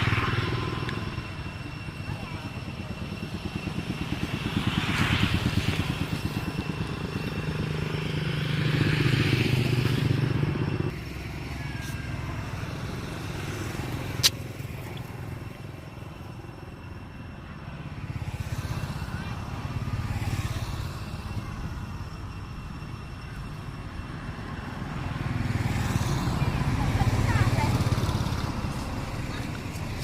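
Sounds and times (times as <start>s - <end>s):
small engine pulsing: 0.0s - 30.0s
sharp click: 14.2s - 15.1s.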